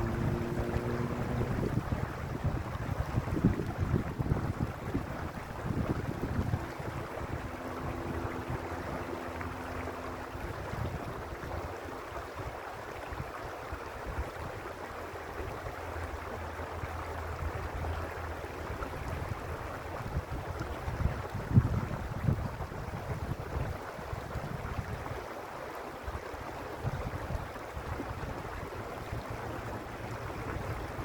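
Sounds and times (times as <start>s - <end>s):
faint steady hum: 0.0s - 13.1s
creek water running: 0.0s - 31.0s
wind rumbling on microphone: 0.0s - 31.0s.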